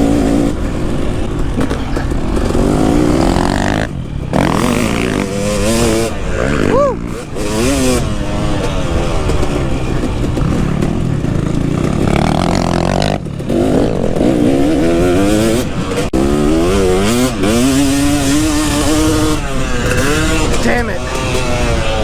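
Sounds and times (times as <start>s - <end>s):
motocross engine revving: 0.0s - 22.0s.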